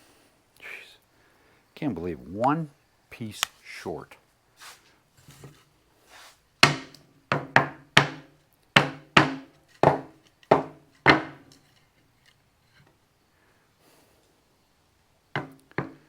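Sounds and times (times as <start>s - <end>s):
wooden boards clacking: 8.8s - 11.5s.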